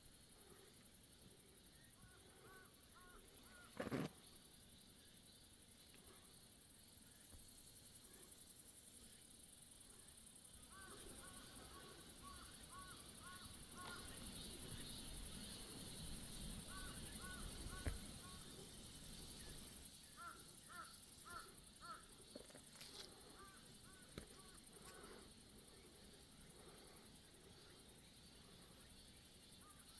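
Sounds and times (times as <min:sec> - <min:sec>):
steady high hiss: 0:00.0 - 0:29.9
crow cawing: 0:12.2 - 0:14.1, 0:16.7 - 0:18.4, 0:20.2 - 0:22.1.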